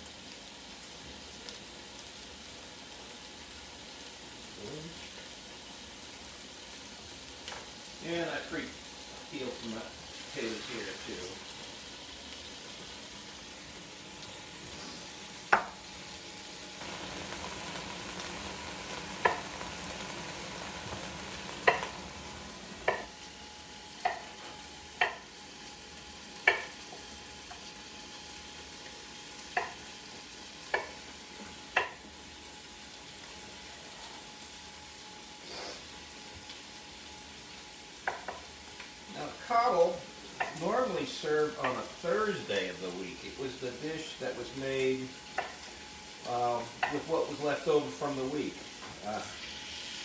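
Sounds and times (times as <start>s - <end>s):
bacon sizzling in a pot: 0.0s - 50.0s.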